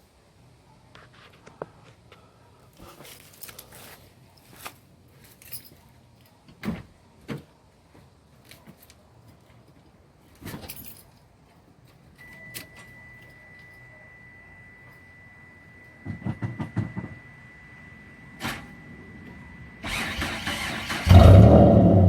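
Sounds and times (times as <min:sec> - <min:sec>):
keys jangling: 0:10.5 - 0:11.3
steady high-pitched tone: 0:12.2 - 0:19.9.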